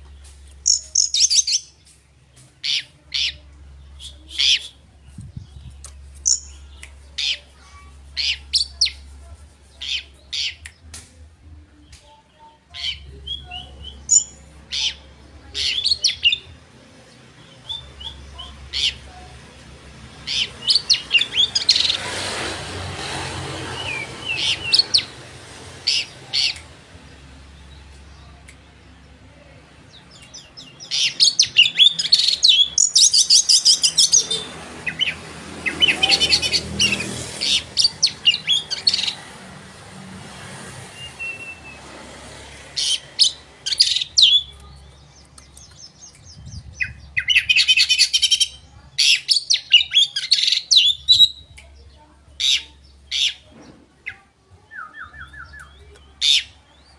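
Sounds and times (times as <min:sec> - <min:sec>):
bird song whistles and chattering: 0:00.6 - 0:01.8, 0:04.0 - 0:07.5, 0:12.8 - 0:15.0, 0:30.1 - 0:39.2, 0:42.8 - 0:51.8, 0:54.0 - 0:56.9.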